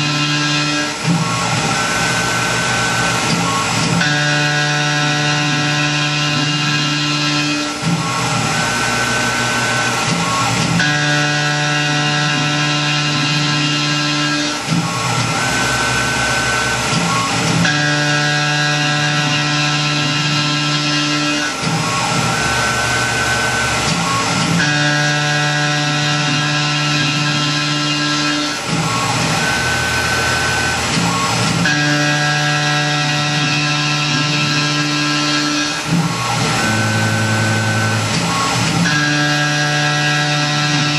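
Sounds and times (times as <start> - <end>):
milling machine cutting metal: 0.0 - 40.9
spindle high tone: 21.8 - 40.9.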